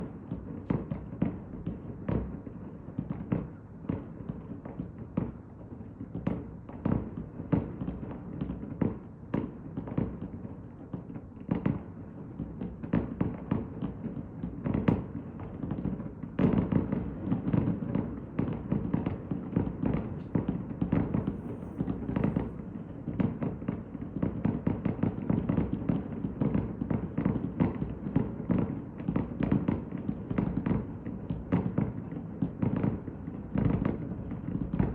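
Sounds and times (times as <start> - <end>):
fireworks bangs: 14.6 - 34.9.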